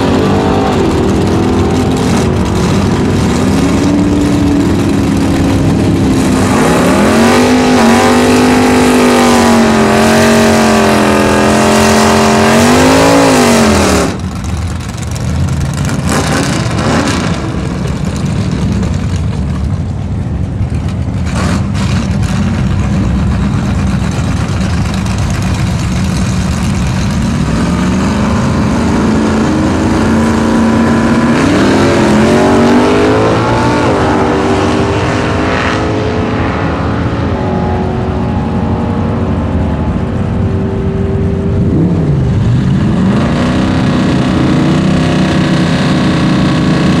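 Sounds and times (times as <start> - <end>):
engine revving at full throttle: 0.0 - 14.6, 15.6 - 18.0, 21.3 - 47.0.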